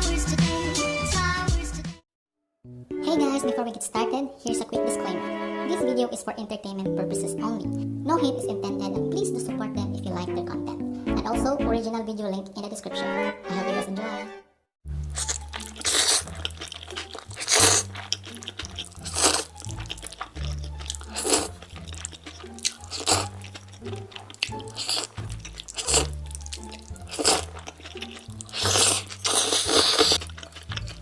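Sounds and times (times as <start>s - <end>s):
background music with bass line: 0.0s - 2.0s
crunchy bites and chewing: 14.9s - 31.0s.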